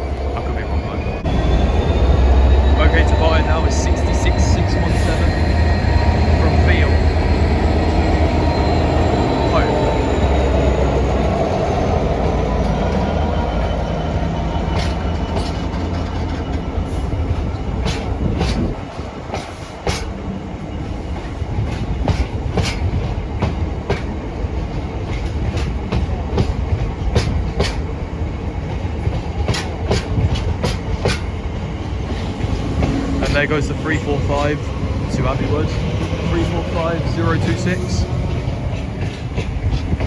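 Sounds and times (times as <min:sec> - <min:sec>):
diesel locomotive rumbling: 0:00.0 - 0:40.0
train wheels clicking over rail joints: 0:00.0 - 0:40.0.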